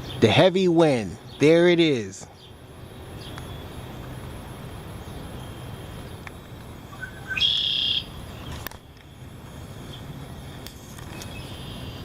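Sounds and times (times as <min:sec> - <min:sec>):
faint bird chirps: 0:06.9 - 0:08.6, 0:11.1 - 0:12.0
loud high bird call: 0:06.9 - 0:08.6, 0:11.2 - 0:12.0.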